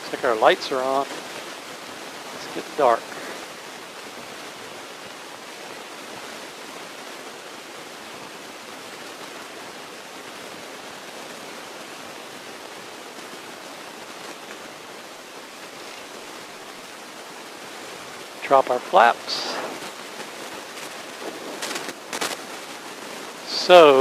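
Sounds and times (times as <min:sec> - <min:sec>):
light plane cockpit hiss: 0:00.0 - 0:01.5, 0:02.1 - 0:06.5, 0:17.9 - 0:22.5, 0:23.4 - 0:24.0.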